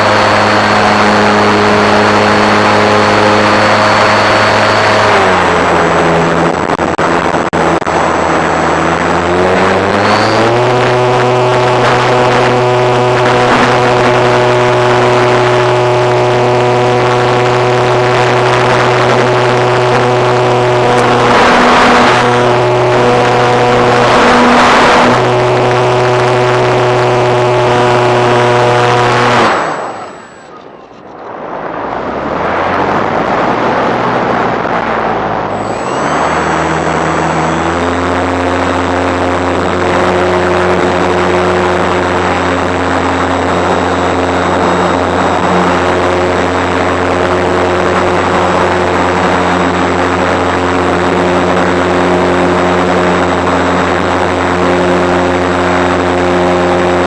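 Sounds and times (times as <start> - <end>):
model airplane engine droning: 0.0 - 57.0.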